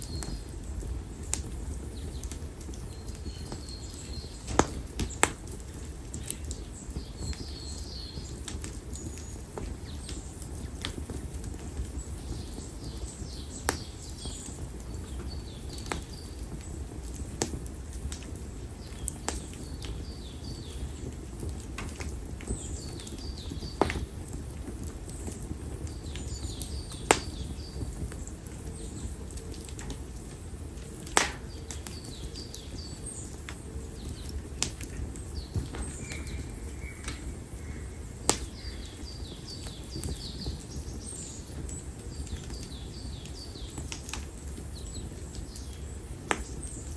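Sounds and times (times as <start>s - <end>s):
firewood crackling and popping: 0.0s - 46.9s
low fire rumble: 0.0s - 46.9s
small birds chirping: 0.0s - 46.9s.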